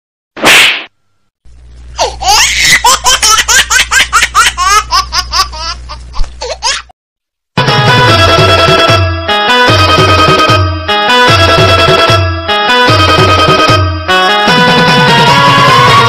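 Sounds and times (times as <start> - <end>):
canned laughter: 2.0 - 6.9.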